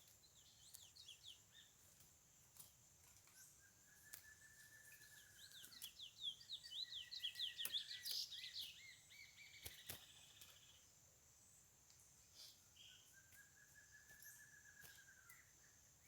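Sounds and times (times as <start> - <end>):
finch singing: 3.2 - 10.8, 12.3 - 15.8.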